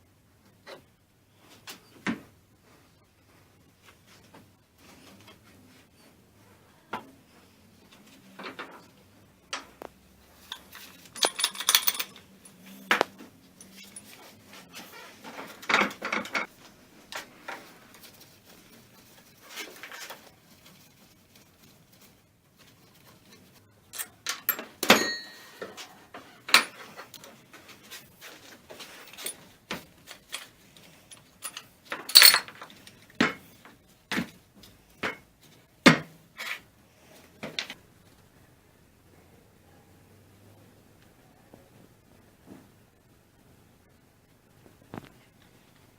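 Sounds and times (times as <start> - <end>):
metal parts clinking: 10.4 - 14.4, 23.9 - 25.7, 26.4 - 27.3, 27.9 - 33.1.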